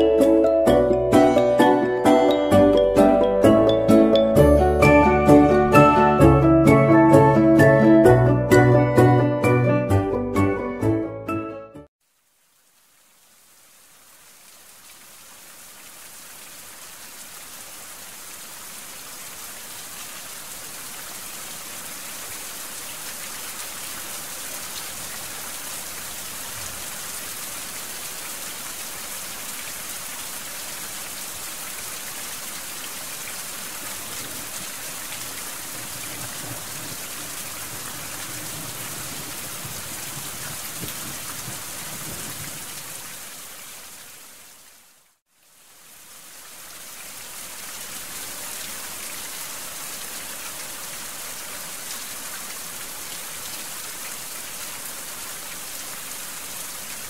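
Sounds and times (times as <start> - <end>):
steady rain: 12.0 - 57.0.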